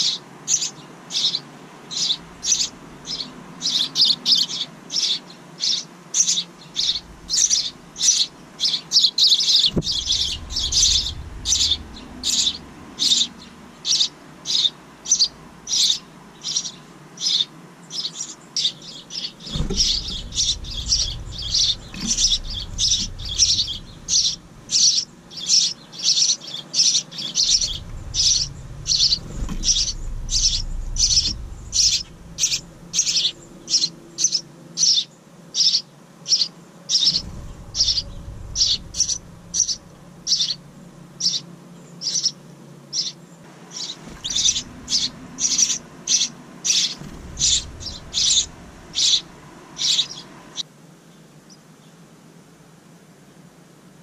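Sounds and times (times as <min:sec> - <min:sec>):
songbird chirping: 0:00.0 - 0:52.0
low rumble: 0:06.8 - 0:08.3, 0:09.6 - 0:15.8, 0:19.5 - 0:25.5, 0:27.3 - 0:34.3, 0:37.1 - 0:41.4, 0:43.5 - 0:50.6.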